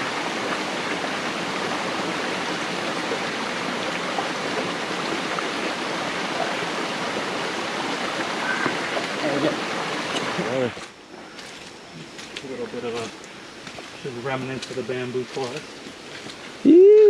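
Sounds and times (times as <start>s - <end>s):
stream water rushing: 0.0s - 11.2s.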